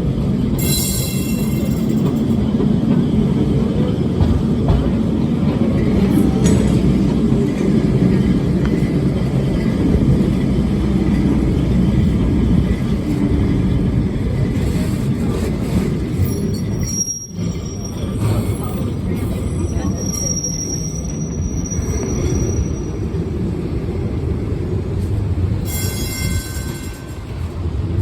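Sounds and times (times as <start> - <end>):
tram rumbling on rails: 0.0 - 28.0
high wheel squeal: 16.1 - 23.1.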